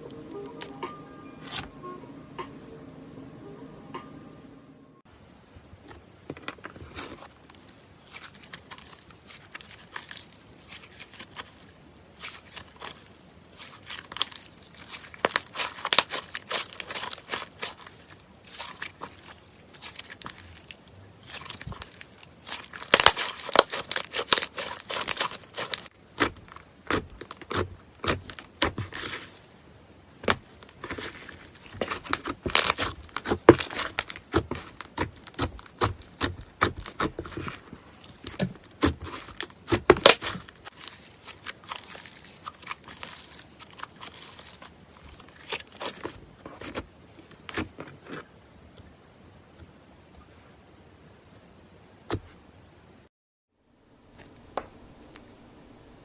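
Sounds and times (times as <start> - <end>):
slime crackling and tearing: 8.0 - 29.4, 30.2 - 46.8.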